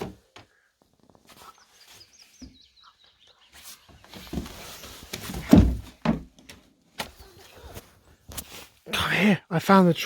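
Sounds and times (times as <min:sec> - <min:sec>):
rustling: 0:03.3 - 0:08.9.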